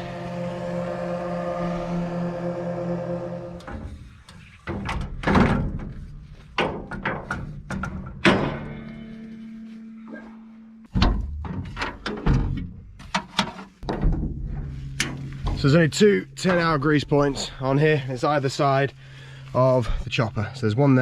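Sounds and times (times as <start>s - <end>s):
low hum: 0.0s - 13.0s, 13.8s - 21.0s
metal clunks and knocks: 4.6s - 9.1s, 10.9s - 15.8s.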